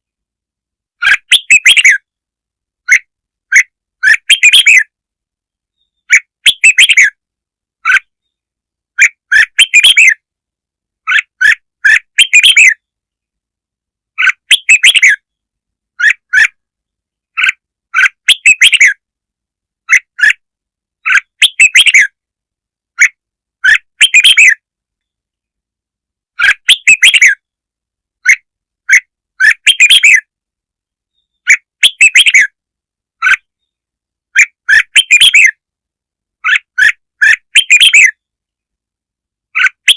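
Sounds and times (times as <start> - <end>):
bulbul chirping song: 1.0 - 2.1, 2.8 - 5.0, 5.7 - 7.2, 9.0 - 10.2, 11.0 - 13.0, 14.2 - 15.4, 17.3 - 19.0, 21.0 - 22.2, 23.0 - 25.1, 26.4 - 27.5, 28.2 - 30.3, 31.1 - 32.6, 33.2 - 35.6, 36.4 - 38.3, 39.5 - 39.9.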